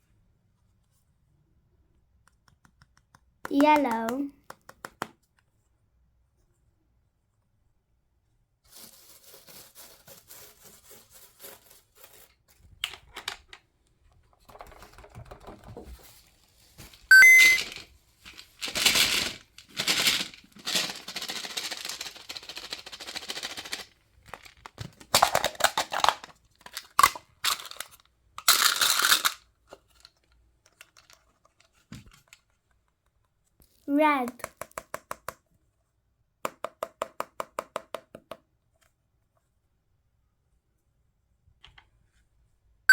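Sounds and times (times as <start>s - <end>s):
crinkling handling noises: 15.6s - 33.9s.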